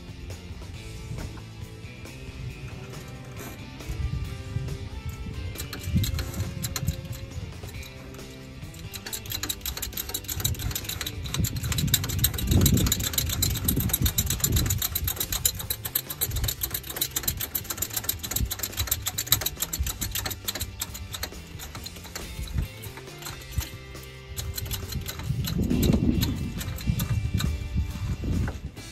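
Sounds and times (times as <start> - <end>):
motor engine running: 0.0 - 28.9
rapid mechanical clicking: 1.1 - 28.9.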